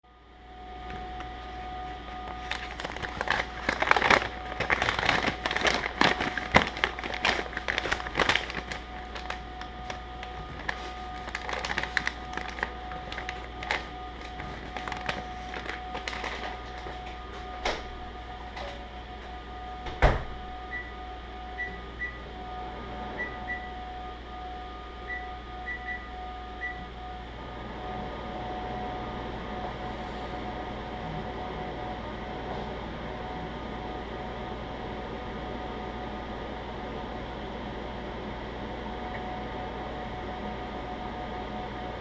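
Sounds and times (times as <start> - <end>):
microwave oven hum: 0.0 - 42.0
popcorn popping: 2.0 - 17.1.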